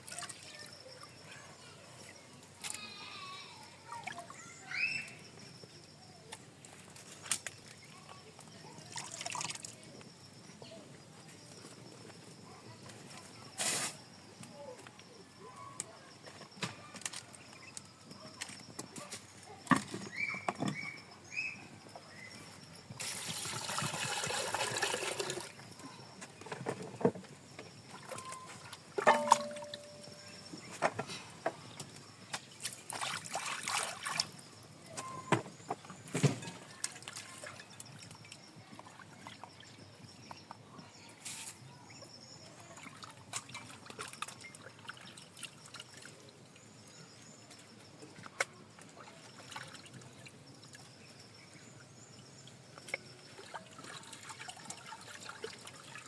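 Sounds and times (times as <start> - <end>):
water trickling and splashing: 0.0 - 1.6, 6.6 - 10.0, 21.9 - 26.6, 27.7 - 30.6, 32.4 - 35.3, 36.1 - 40.4, 42.0 - 56.0
water pouring: 23.0 - 25.8, 29.0 - 30.0, 53.3 - 56.0
light knocks and clinks: 25.8 - 31.6.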